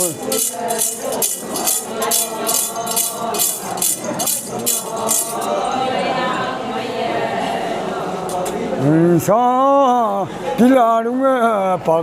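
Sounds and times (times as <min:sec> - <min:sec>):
metal jingle rattle shaken: 0:00.0 - 0:05.8
faint voices: 0:00.0 - 0:10.6.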